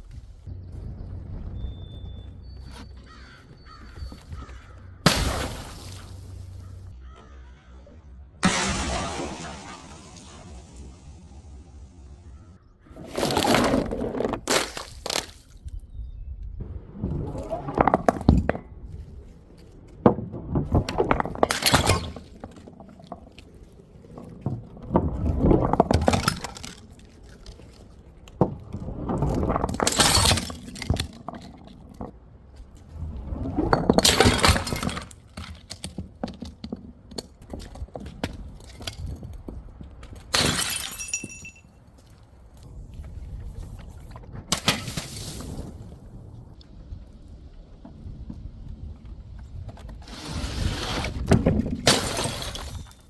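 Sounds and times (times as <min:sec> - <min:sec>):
glass bottles shattering: 0:05.0 - 0:06.9, 0:20.8 - 0:23.4, 0:24.2 - 0:27.7, 0:29.2 - 0:31.7, 0:33.5 - 0:35.9, 0:40.3 - 0:41.8, 0:51.7 - 0:53.0
glass shards tinkling: 0:40.4 - 0:41.8.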